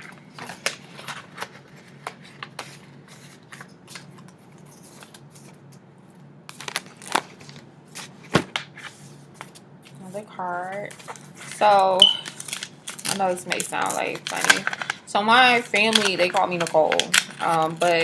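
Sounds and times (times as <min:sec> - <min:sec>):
paper rustling: 0:10.7 - 0:18.0.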